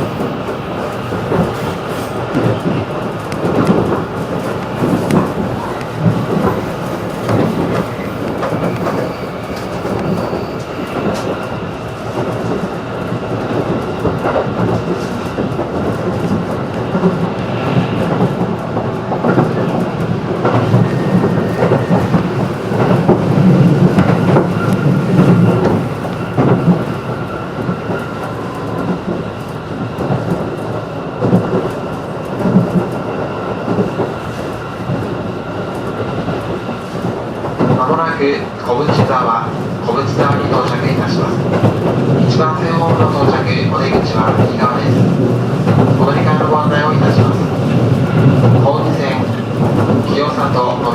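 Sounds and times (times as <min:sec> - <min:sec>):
train wheels rumbling on rails: 0:00.0 - 0:50.9
wheels clacking over track joints: 0:18.1 - 0:28.2.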